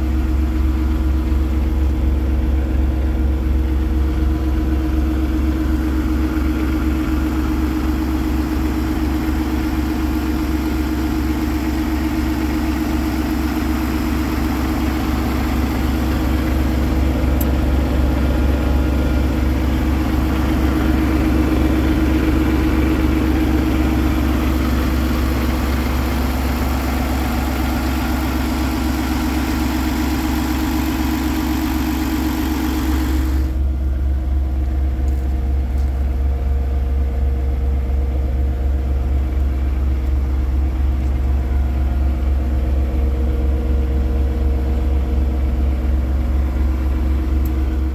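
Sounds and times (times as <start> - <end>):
truck diesel engine idling: 0.0 - 47.9.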